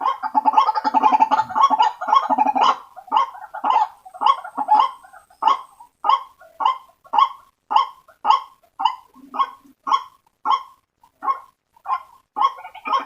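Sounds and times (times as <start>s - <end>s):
waterhen calling: 0.0s - 13.0s.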